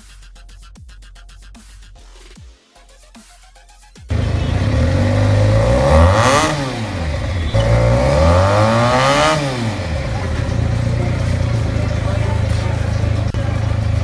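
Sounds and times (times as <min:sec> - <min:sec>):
motorcycle engine revving and idling: 0:04.1 - 0:14.0.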